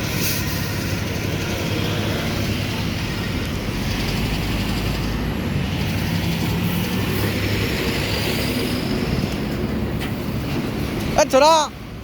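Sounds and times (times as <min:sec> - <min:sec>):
road and wind noise: 0:00.0 - 0:12.0
truck engine drone: 0:00.0 - 0:12.0.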